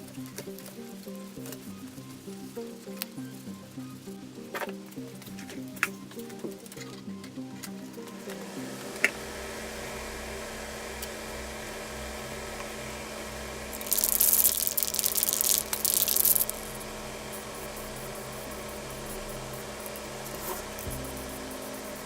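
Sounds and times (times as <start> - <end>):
low hum: 7.1 - 22.0
aerosol can spraying: 13.8 - 22.0.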